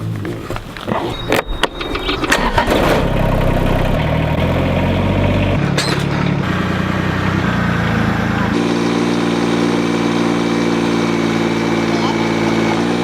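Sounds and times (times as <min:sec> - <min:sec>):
engine starting and running: 0:00.7 - 0:13.0.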